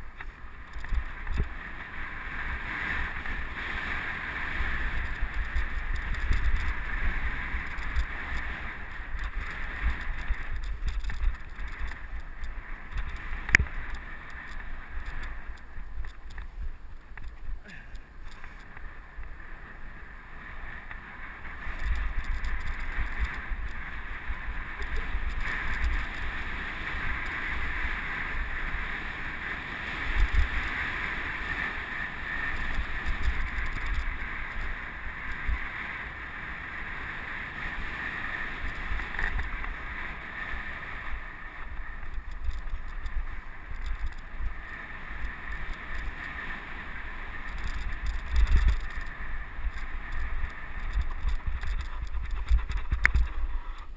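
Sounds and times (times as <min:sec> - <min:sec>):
riding noise hiss: 0:00.0 - 0:53.9
wind buffeting microphone: 0:00.6 - 0:17.7, 0:37.7 - 0:53.9.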